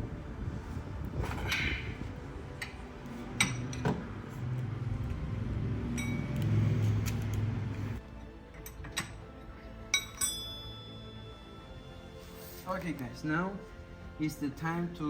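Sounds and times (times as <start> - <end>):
wrench clinking on metal nut: 9.9 - 10.6.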